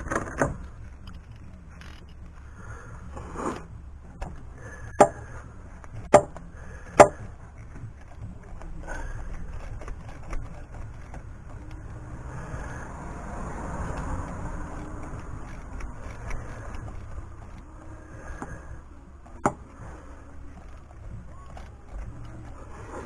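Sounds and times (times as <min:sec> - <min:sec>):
low steady rumble: 0:00.0 - 0:23.0
vehicle passing by: 0:10.4 - 0:20.4.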